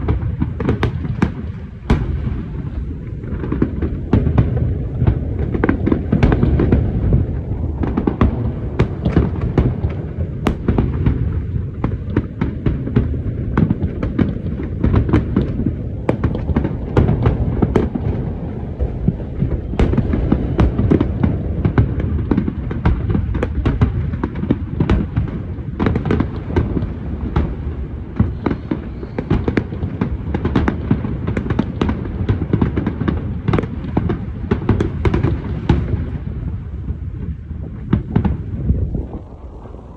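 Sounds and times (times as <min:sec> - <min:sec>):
low rumble of shell bursts: 0:00.0 - 0:14.1, 0:15.0 - 0:22.7
fireworks bangs and crackles: 0:00.0 - 0:39.9.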